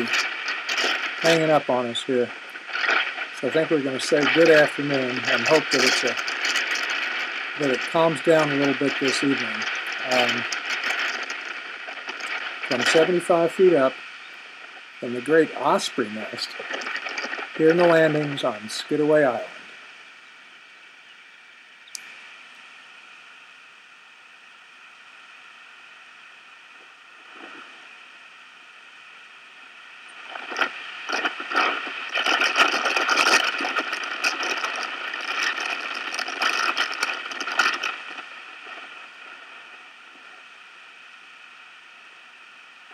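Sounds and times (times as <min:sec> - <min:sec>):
wind buffeting microphone: 0:00.0 - 0:19.4, 0:30.1 - 0:39.8
faint steady hiss and hum: 0:00.0 - 0:42.9.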